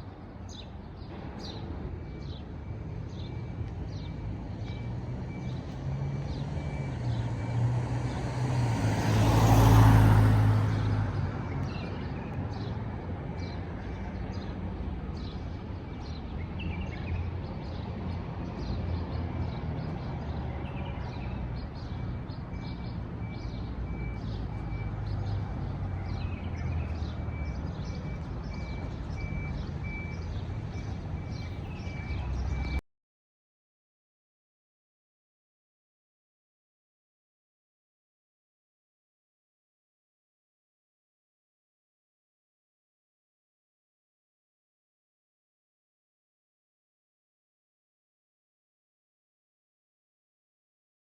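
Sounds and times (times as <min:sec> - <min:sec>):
road traffic rumble: 0:00.0 - 0:32.8
vehicle passing close: 0:05.9 - 0:11.2.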